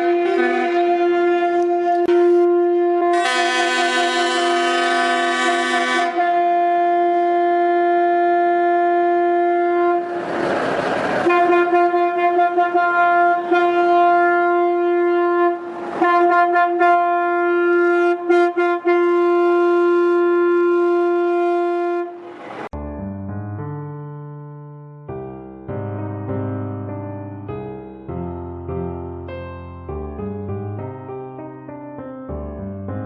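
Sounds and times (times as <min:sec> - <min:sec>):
vehicle horn blaring: 0:00.0 - 0:10.1, 0:11.2 - 0:22.3.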